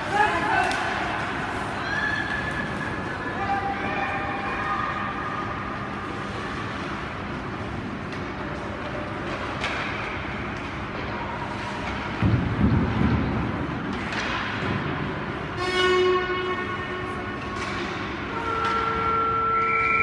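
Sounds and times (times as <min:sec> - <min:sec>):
stick and puck clacks: 0:00.0 - 0:03.2, 0:06.0 - 0:15.3, 0:17.3 - 0:20.0
skates on ice: 0:00.0 - 0:15.4
horn-like pitched tone: 0:15.6 - 0:17.1, 0:18.3 - 0:20.0.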